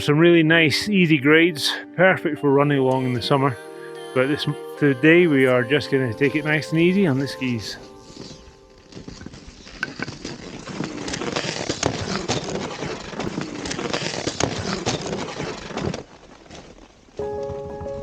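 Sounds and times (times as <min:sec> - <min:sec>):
skis swishing over snow: 0:06.0 - 0:17.6
ski and pole plant strokes: 0:06.8 - 0:17.2.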